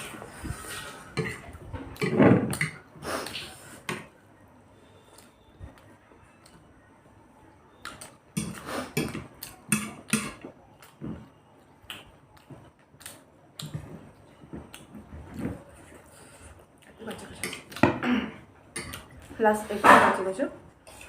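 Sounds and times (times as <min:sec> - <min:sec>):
wet chewing with mouth clicks: 0:07.7 - 0:17.8.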